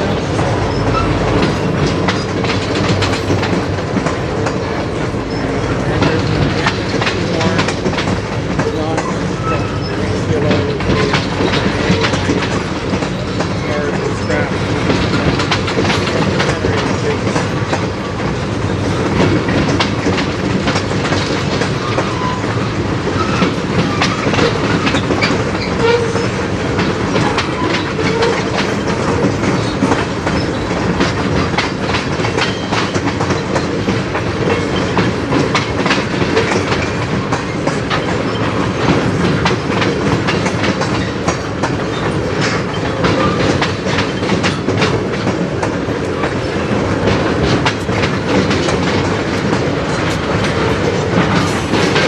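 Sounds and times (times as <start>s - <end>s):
train low rumble: 0.0s - 52.0s
train wheels clattering over joints: 0.0s - 52.0s.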